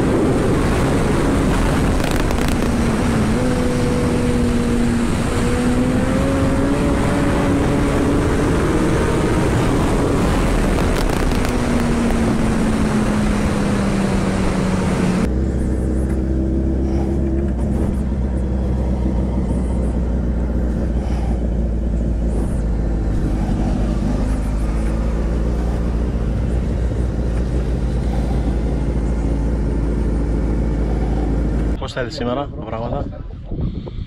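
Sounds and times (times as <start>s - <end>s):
motorcycle engine: 0.0s - 31.8s
wind rush: 0.0s - 34.0s.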